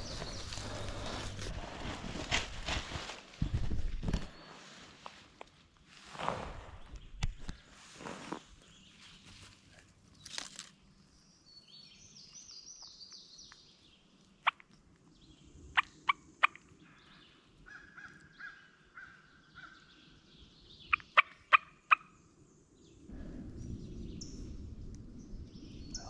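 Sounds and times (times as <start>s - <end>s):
small bird singing: 0.0s - 1.4s, 11.0s - 26.0s.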